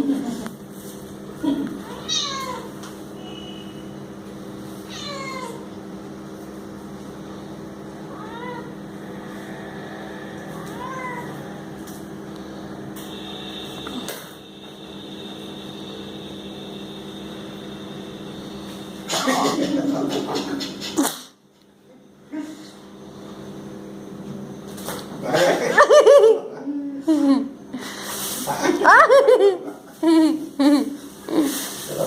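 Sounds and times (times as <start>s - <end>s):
steady low hum: 0.0s - 32.0s
cat meowing: 1.8s - 2.7s, 4.9s - 5.7s, 8.1s - 8.8s, 10.5s - 11.6s.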